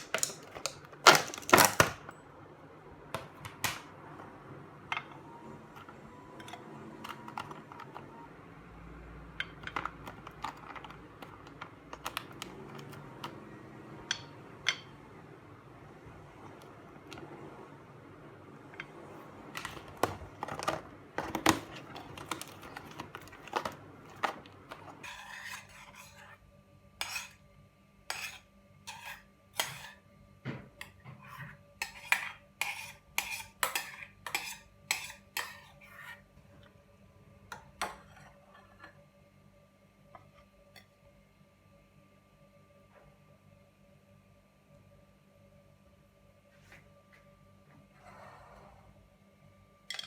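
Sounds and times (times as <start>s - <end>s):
faint appliance hum: 0.0s - 50.0s
cutlery clinking against dishes: 31.8s - 35.7s.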